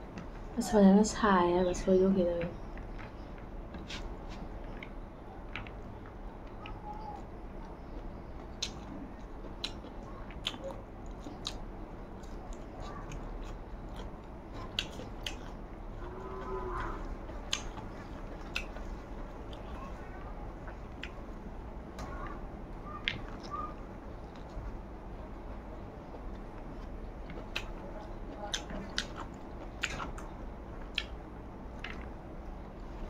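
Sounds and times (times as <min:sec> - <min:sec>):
person chewing food: 0:02.6 - 0:22.4, 0:23.0 - 0:33.0.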